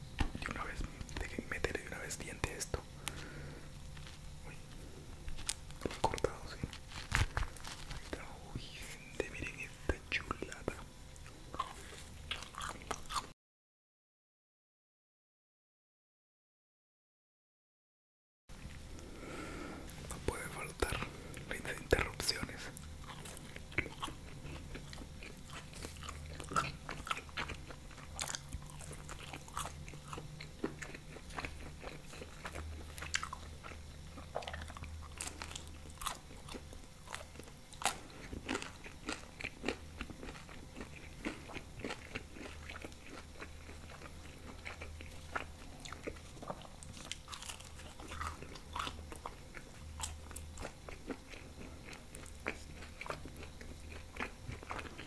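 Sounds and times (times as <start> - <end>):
faint low hum: 0.0 - 13.3, 18.5 - 55.0
pizza crust crunching: 2.5 - 9.6, 20.1 - 55.0.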